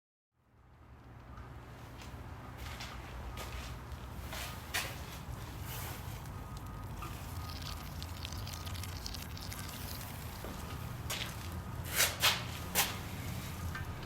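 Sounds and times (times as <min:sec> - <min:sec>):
steady low hum: 0:00.4 - 0:14.0
fine crackling of oil suction: 0:05.6 - 0:11.6.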